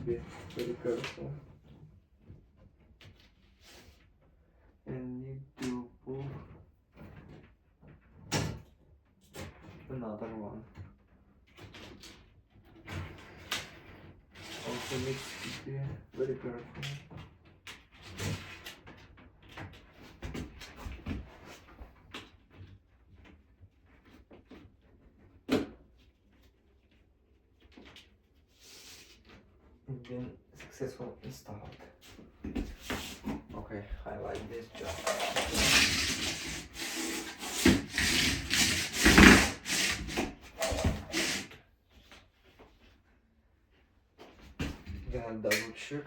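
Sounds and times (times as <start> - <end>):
hands tapping and rubbing floor: 31.7 - 43.0.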